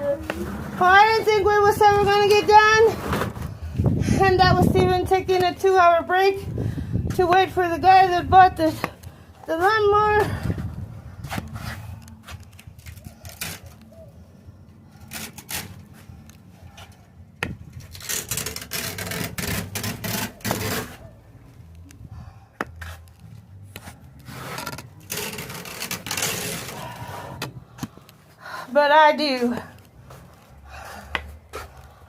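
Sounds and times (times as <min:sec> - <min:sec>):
irregular scraping and rubbing: 0:00.0 - 0:05.8, 0:14.9 - 0:21.9, 0:22.6 - 0:28.1.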